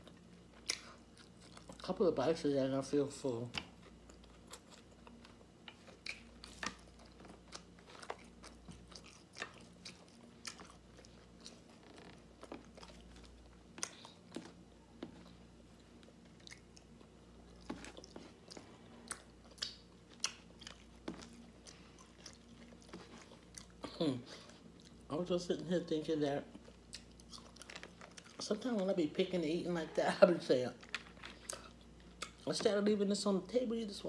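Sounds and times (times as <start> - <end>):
person chewing crunchy food: 0.0 - 1.9, 3.6 - 25.1, 26.5 - 28.7, 30.8 - 32.5.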